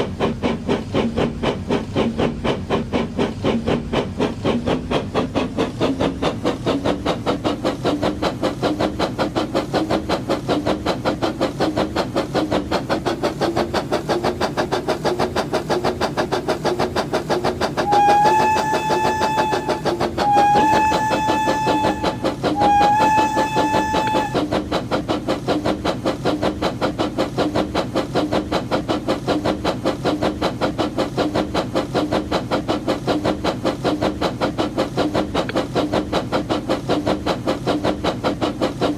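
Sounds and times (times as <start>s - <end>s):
toy train chugging: 0.0s - 38.9s
train whistle toots: 17.8s - 24.5s.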